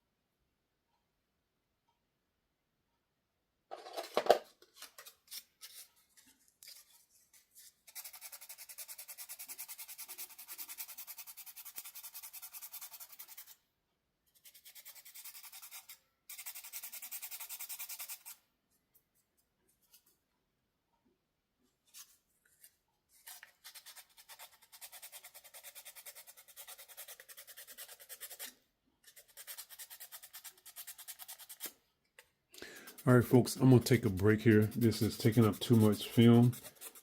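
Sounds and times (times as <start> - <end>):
back-and-forth scraping strokes: 32.8 - 37.0.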